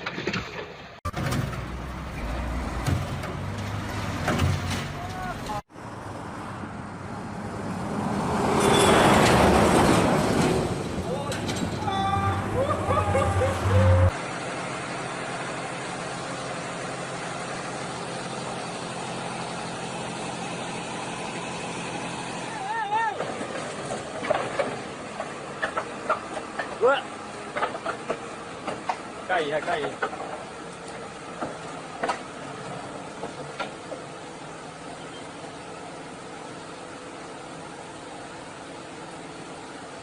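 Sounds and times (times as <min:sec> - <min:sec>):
heavy vehicle engine rumbling: 0:00.9 - 0:40.0
vehicle engine running: 0:10.8 - 0:23.0.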